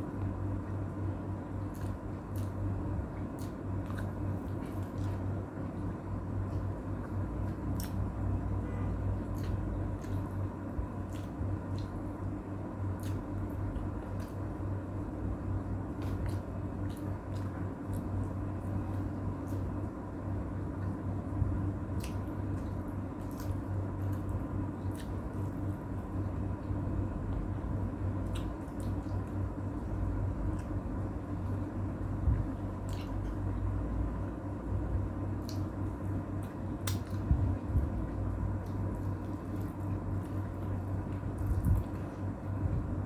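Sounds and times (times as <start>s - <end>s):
low hum: 0.0s - 43.0s
person chewing: 1.6s - 8.2s, 9.2s - 12.2s, 12.9s - 14.6s, 15.9s - 20.0s, 21.9s - 26.6s, 28.2s - 31.7s, 32.4s - 33.6s, 35.4s - 42.2s.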